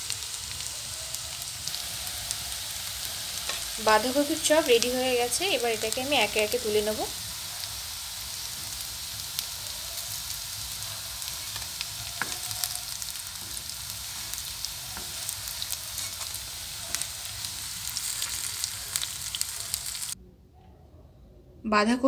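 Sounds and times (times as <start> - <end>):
fritters sizzling in oil: 0.0 - 20.2
spatula scraping and tapping pan: 11.5 - 12.5, 16.0 - 17.0.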